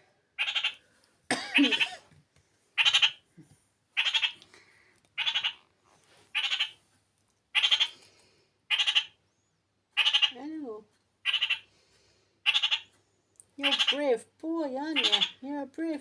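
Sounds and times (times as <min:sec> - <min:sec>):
parakeet harsh calls: 0:00.4 - 0:00.8, 0:02.8 - 0:03.2, 0:04.0 - 0:04.4, 0:05.2 - 0:05.6, 0:06.4 - 0:06.8, 0:07.6 - 0:08.0, 0:08.7 - 0:09.2, 0:10.0 - 0:10.4, 0:11.2 - 0:11.7, 0:12.4 - 0:12.9, 0:13.6 - 0:14.0, 0:15.0 - 0:15.4.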